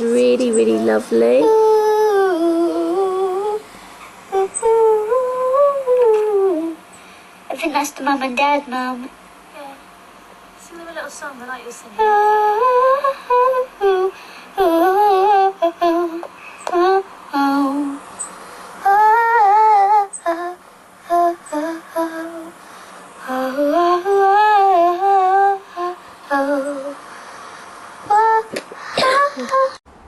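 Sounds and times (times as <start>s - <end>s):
girl humming: 0.0s - 3.6s, 4.3s - 6.8s, 12.0s - 18.0s, 18.8s - 22.5s, 23.2s - 27.0s, 28.1s - 29.8s.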